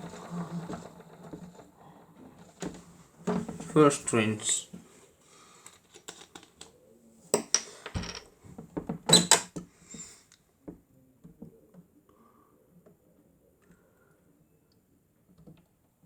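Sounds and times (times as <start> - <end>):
toy washing machine clattering: 0.0 - 4.3.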